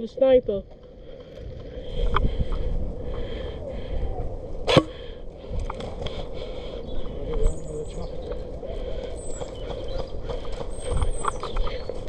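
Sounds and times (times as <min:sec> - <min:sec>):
microphone handling rumble: 0:00.4 - 0:06.2
sharp crack: 0:04.7 - 0:05.0.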